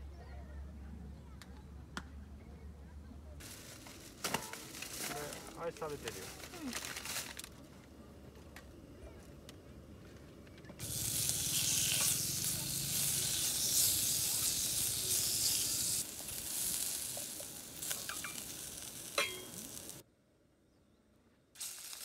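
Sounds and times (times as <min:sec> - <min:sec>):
garlic sizzling in oil: 0:10.8 - 0:20.0, 0:21.6 - 0:22.0.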